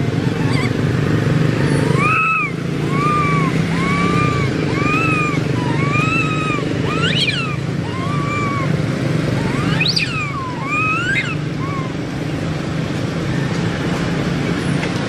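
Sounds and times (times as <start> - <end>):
baby monkey cooing: 0.0 - 1.1, 1.8 - 12.2
low engine-like rumble: 0.0 - 15.0
baby monkey shrill cries: 0.1 - 0.9, 1.8 - 12.1.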